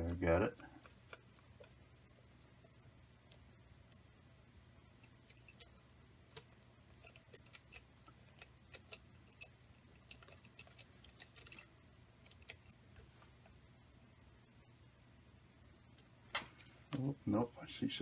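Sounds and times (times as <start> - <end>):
small metal tools clinking: 5.0 - 13.1.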